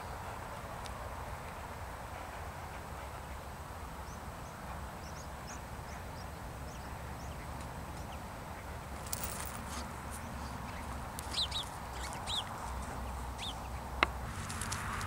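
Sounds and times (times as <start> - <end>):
small birds chirping: 4.0 - 14.2
brief rustle: 9.0 - 10.3.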